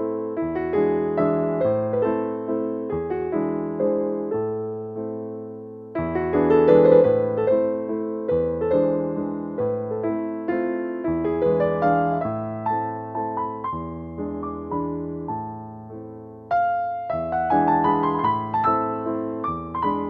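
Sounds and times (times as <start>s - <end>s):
gentle piano melody: 0.0s - 20.0s.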